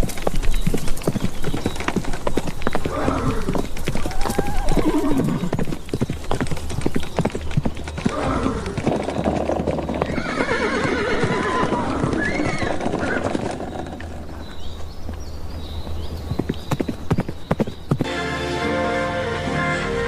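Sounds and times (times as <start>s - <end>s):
galloping hooves: 0.0s - 18.2s
horses whinnying: 2.7s - 5.7s, 7.9s - 14.6s.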